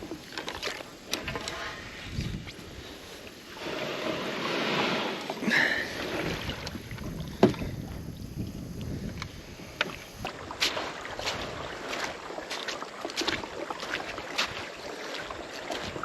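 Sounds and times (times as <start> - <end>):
wind on microphone: 1.1 - 5.2, 5.8 - 12.3.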